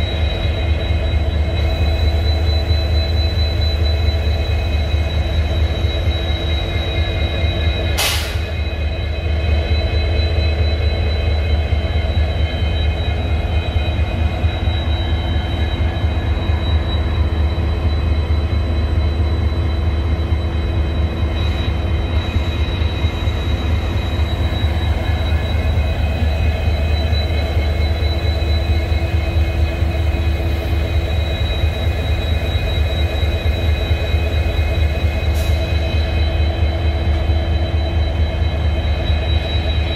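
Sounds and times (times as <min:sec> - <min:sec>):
diesel locomotives idling: 0:00.0 - 0:39.9
sharp click: 0:08.0 - 0:08.5.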